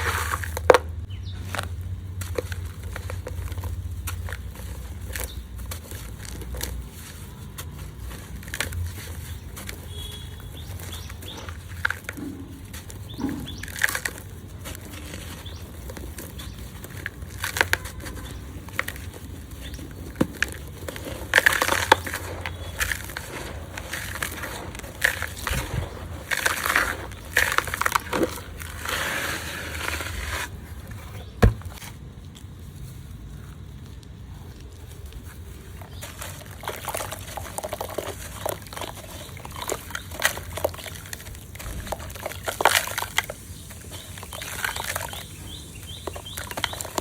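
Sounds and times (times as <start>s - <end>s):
dirt crushed in hands: 0.0s - 47.0s.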